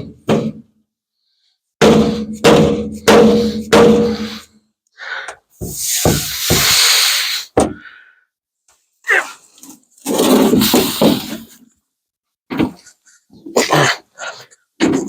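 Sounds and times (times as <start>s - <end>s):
hissing rubbing noise: 5.6s - 7.6s.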